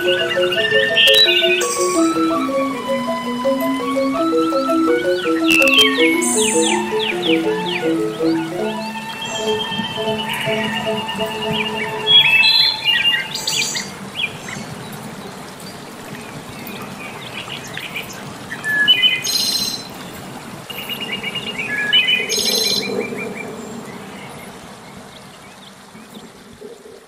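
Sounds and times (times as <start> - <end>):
small birds chirping: 0.0 - 15.0
flowing water: 0.0 - 19.0.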